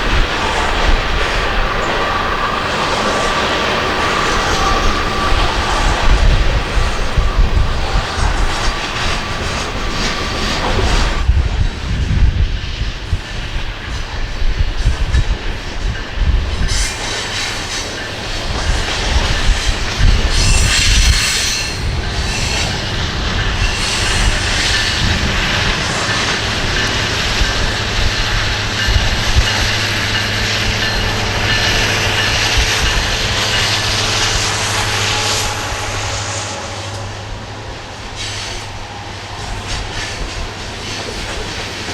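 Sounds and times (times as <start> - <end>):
wheels squealing: 0.0 - 11.3
heavy train rumble: 0.0 - 41.9
train wheels clacking on rails: 0.0 - 41.9.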